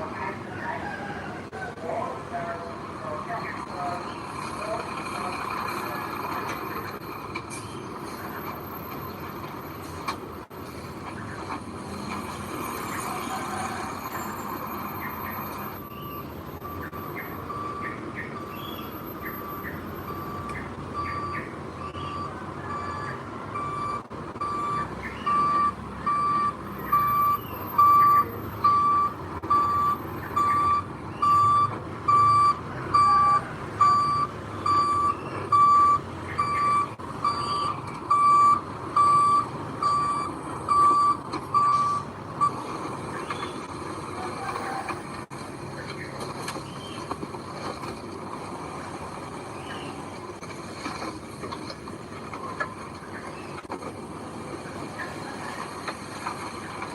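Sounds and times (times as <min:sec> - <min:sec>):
diesel engine running: 0:00.0 - 0:56.9
reversing alarm beeping: 0:12.9 - 0:42.7.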